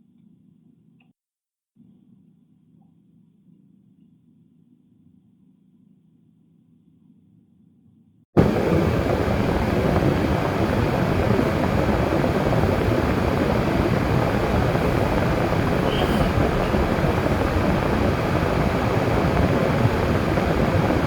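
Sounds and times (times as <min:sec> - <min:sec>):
car road and tyre noise: 0:08.4 - 0:21.0.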